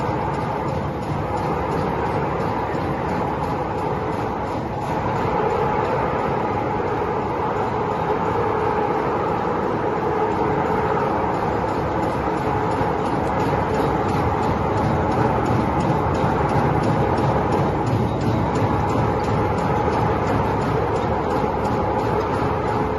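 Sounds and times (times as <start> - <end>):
faint rapid ticks: 0.0 - 22.9
recycling machinery running: 0.0 - 22.9.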